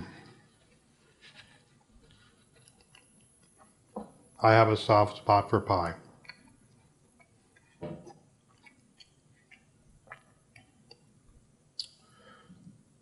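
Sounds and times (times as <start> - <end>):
soft chewing: 0.3 - 3.8, 6.2 - 11.2.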